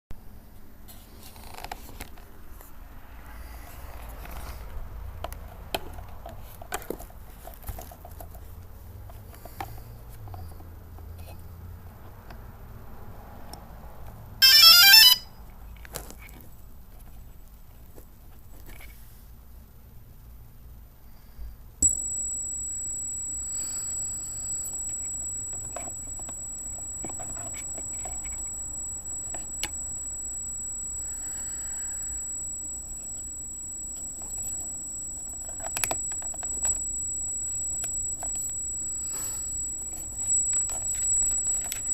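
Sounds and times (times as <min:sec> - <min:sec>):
steady low hum: 0:19.2 - 0:41.9
high-pitched motor whine: 0:21.8 - 0:41.9.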